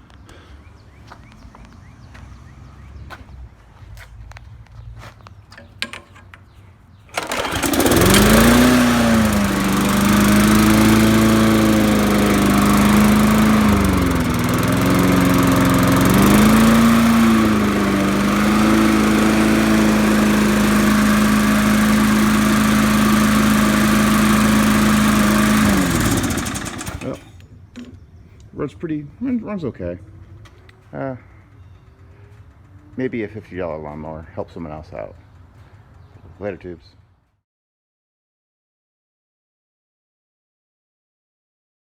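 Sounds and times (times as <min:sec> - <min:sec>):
lawn mower engine running: 0:07.1 - 0:27.4
lawn mower pull-start: 0:07.1 - 0:27.5.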